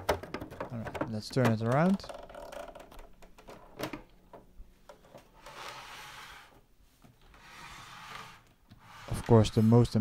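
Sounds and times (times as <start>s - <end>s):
soft sliding and rubbing: 5.4s - 10.0s.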